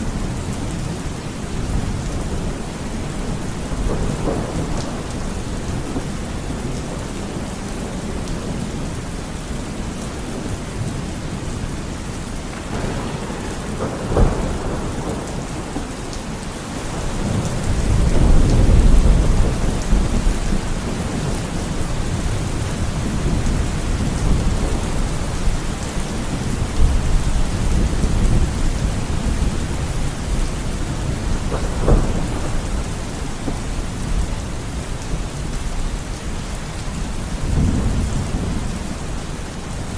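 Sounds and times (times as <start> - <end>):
low thunder rumble: 0.0 - 9.2, 12.3 - 39.9
steady rain: 0.0 - 39.9
sharp thunder crack: 12.5 - 20.6.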